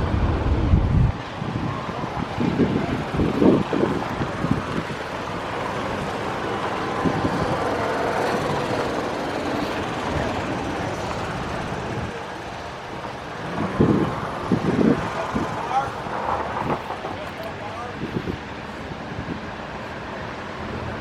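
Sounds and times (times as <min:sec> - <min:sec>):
vehicle engine and road noise: 0:00.0 - 0:21.0.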